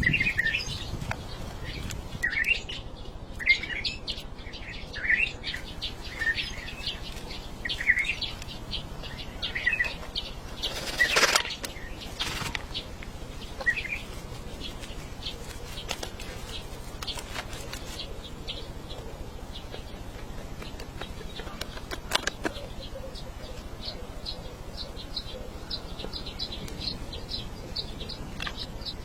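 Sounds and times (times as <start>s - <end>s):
small birds chirping: 0.0s - 29.0s
rustling: 9.9s - 18.3s.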